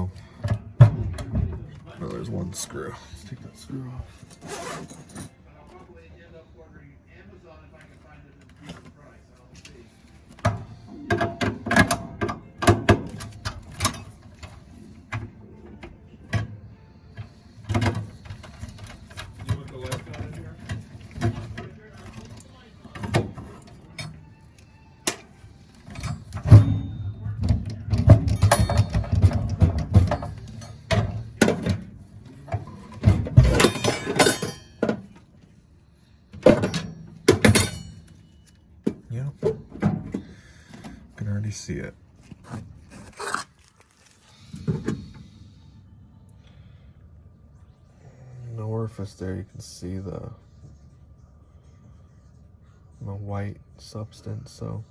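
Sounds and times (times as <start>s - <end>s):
metal tools clanking and rattling: 0.0s - 5.4s, 10.3s - 15.3s, 17.2s - 24.3s, 25.1s - 35.3s, 36.4s - 41.2s, 44.5s - 45.3s
metal tools clicking and clinking: 4.2s - 5.4s, 25.1s - 31.8s, 32.4s - 35.2s, 36.4s - 38.6s.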